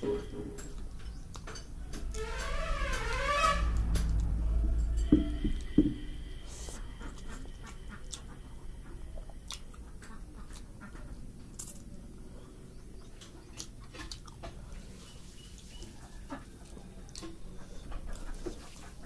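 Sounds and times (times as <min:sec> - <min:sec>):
steady low hum: 0:00.0 - 0:19.0
chewing with wet mouth clicks: 0:00.6 - 0:01.7, 0:07.1 - 0:08.4, 0:09.1 - 0:10.7, 0:13.2 - 0:14.6, 0:15.8 - 0:17.4.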